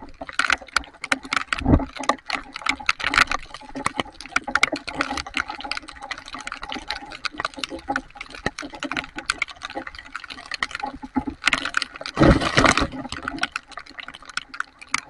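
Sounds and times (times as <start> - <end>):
raindrops ticking near microphone: 0.0 - 15.0
rush of water: 0.0 - 15.0.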